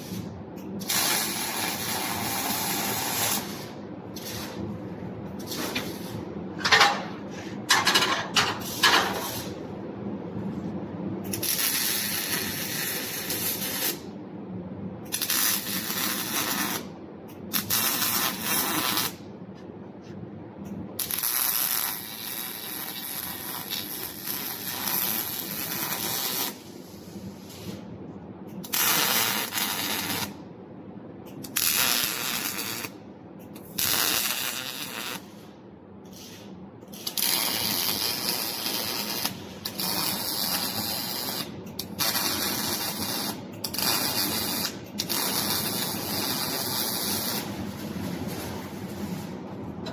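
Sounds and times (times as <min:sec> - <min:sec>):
welder arcing crackle: 0:00.0 - 0:04.6, 0:11.3 - 0:14.1, 0:15.1 - 0:16.9, 0:17.5 - 0:19.2, 0:21.0 - 0:27.0, 0:28.6 - 0:30.4, 0:31.4 - 0:33.0, 0:33.6 - 0:35.4, 0:36.1 - 0:47.6.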